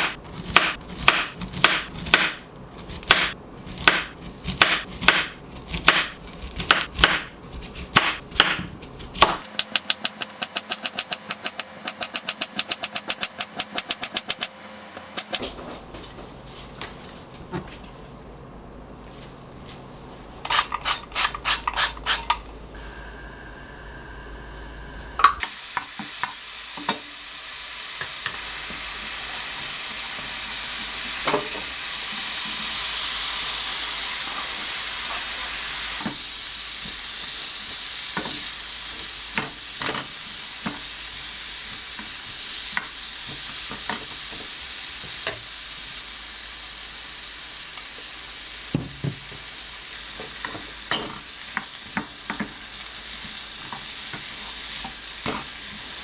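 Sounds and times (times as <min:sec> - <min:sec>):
food sizzling in a frying pan: 0:25.4 - 0:56.0.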